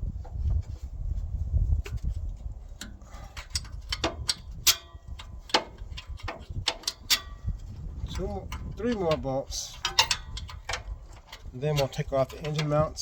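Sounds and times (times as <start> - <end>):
hand tools clicking on metal: 2.8 - 13.0.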